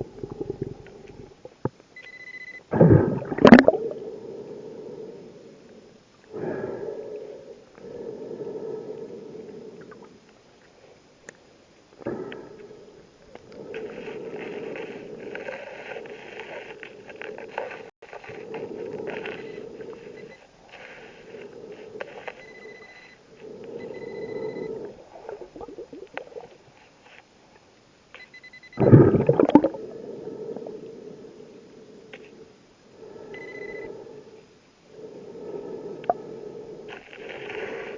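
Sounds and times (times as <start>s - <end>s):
exhaled bubbles: 0.0s - 1.6s, 2.7s - 4.2s, 23.8s - 26.6s, 28.8s - 30.8s
scuba regulator breathing: 2.7s - 11.1s, 12.0s - 27.3s, 28.8s - 37.9s.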